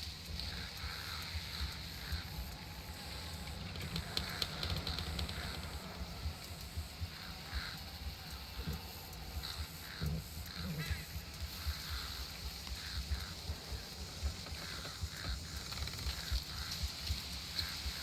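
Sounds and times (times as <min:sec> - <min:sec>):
faint animal calls: 0:00.0 - 0:18.0
steady high hiss: 0:00.0 - 0:18.0.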